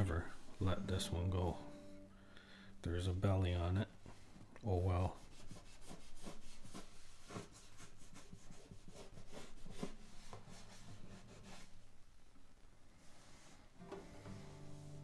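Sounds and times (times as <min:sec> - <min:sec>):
rubbing on guitar body: 0:02.9 - 0:12.0, 0:13.0 - 0:15.0.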